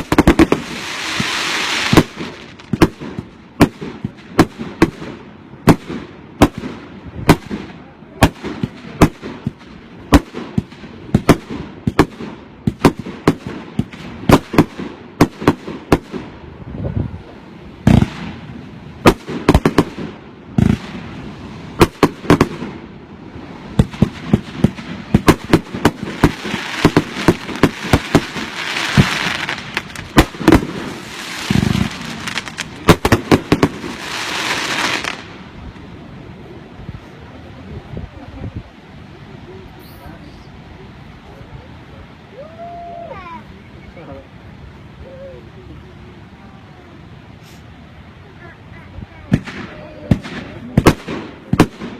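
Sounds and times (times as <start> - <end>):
fireworks bangs: 0.0 - 16.5, 17.2 - 36.1, 49.1 - 51.9
fireworks hissing crackle: 0.0 - 51.9.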